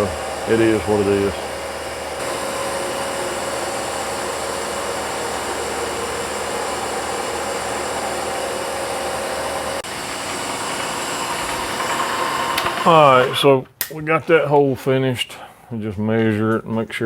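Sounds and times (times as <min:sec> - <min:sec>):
milling machine cutting metal: 0:00.0 - 0:13.6.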